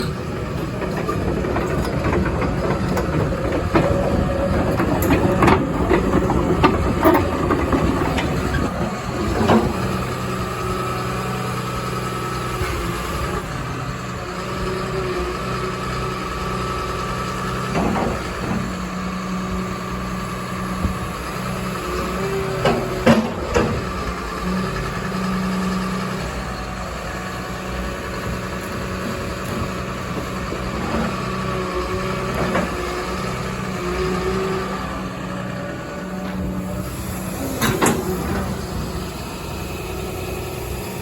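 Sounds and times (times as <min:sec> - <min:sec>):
metal clanks and knocks: 0:00.0 - 0:10.0, 0:22.6 - 0:24.0, 0:36.2 - 0:38.8
excavator diesel engine running: 0:00.0 - 0:41.0.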